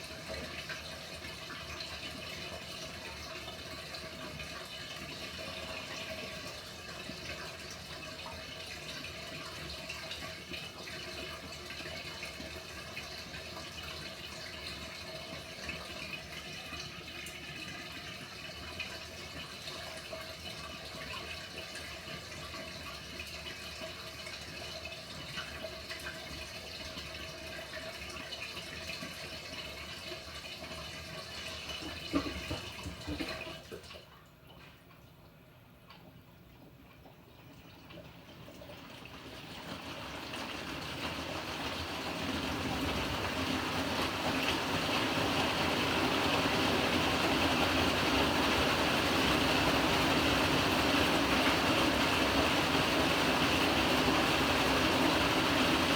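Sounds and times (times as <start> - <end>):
water filling washing machine tub: 0.0 - 34.9, 36.6 - 55.9.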